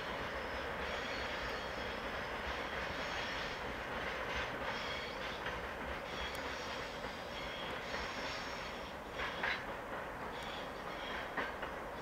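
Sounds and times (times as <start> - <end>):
faint high wheel squeal: 0.0 - 3.7, 4.3 - 9.7, 10.3 - 11.6
train wheels rumbling on rail: 0.0 - 12.0.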